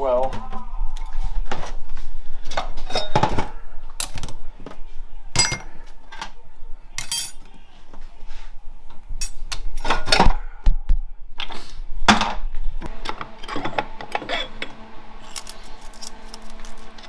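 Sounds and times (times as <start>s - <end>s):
metal parts clanking: 7.0s - 7.4s.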